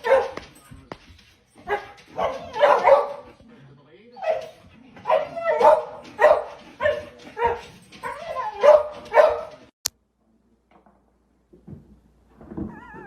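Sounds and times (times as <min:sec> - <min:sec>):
dog barking: 0:00.0 - 0:00.5, 0:01.6 - 0:03.4, 0:04.2 - 0:09.7.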